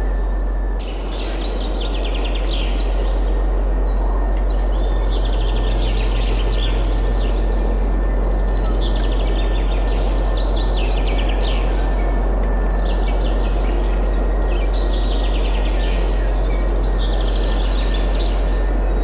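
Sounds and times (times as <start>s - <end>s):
small songbirds trilling: 0.8s - 19.0s.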